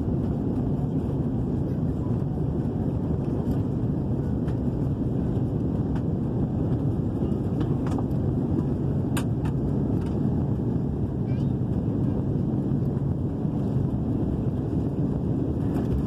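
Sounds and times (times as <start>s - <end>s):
airliner cabin engine rumble: 0.0s - 16.0s.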